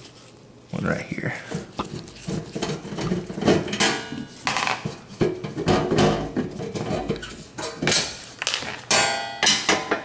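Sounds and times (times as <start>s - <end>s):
tool clinking on sheet metal: 8.9s - 10.0s.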